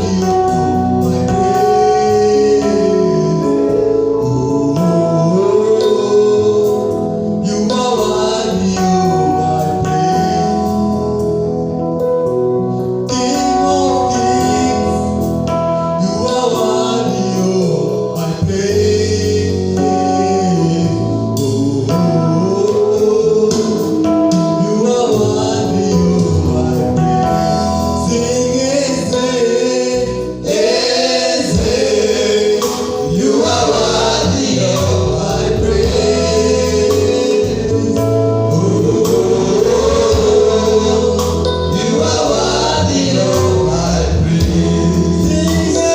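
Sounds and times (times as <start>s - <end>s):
bass line: 0.0s - 45.9s
keyboard chords: 0.0s - 45.9s
choir singing: 28.0s - 45.9s.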